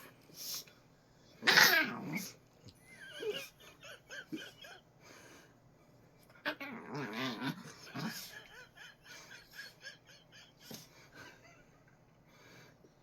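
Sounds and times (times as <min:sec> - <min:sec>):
small dog growling and whining: 0:01.4 - 0:02.4, 0:06.4 - 0:08.3.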